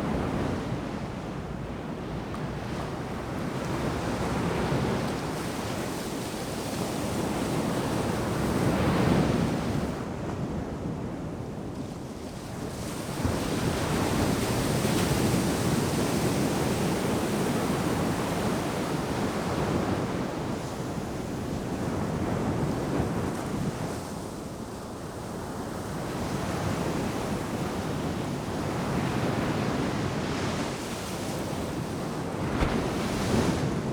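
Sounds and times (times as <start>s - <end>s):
wind rumble on microphone: 0.0s - 33.9s
ocean surf breaking on beach: 26.2s - 33.9s.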